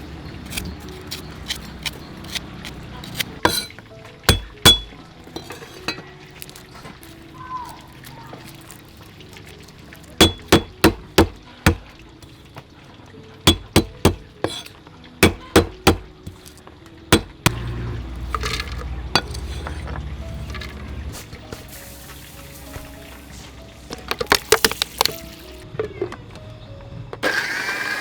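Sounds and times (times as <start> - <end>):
faint water trickle: 5.0 - 10.2, 11.4 - 13.6
sharp hard knocks: 10.2 - 11.9, 13.5 - 14.3, 15.2 - 16.4, 17.2 - 17.6.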